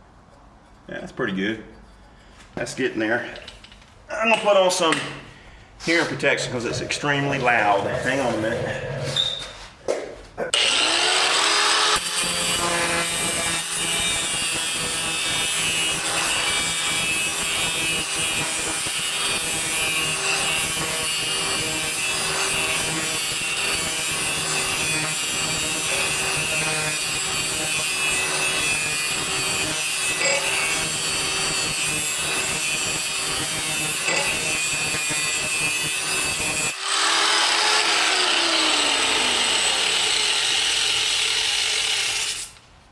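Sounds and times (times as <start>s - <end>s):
angle grinder grinding metal blade: 10.6s - 42.6s.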